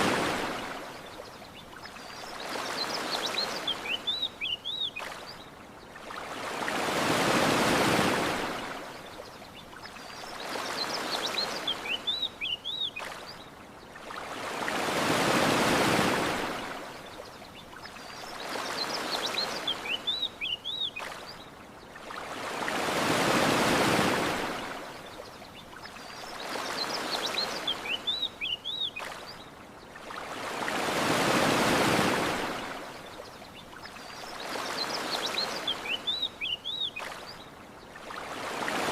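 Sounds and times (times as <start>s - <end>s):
small waves washing ashore: 0.0s - 38.9s
bird chirping: 1.4s - 5.4s, 33.5s - 37.4s.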